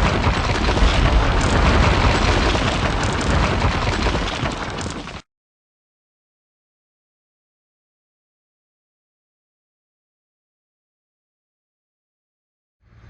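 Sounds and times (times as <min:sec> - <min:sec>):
rumbling explosion crash: 0:00.0 - 0:05.2.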